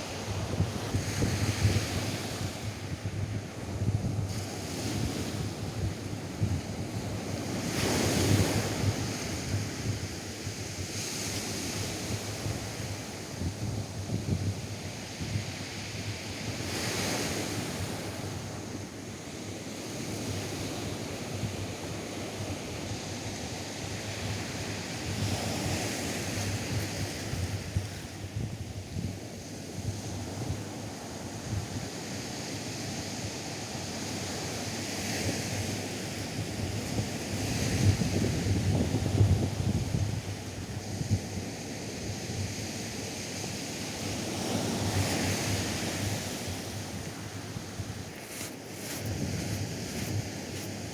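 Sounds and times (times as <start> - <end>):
wind buffeting the microphone: 0.0 - 18.5, 23.9 - 32.1, 33.9 - 42.7, 44.4 - 50.9
surf breaking on a beach: 43.3 - 50.9.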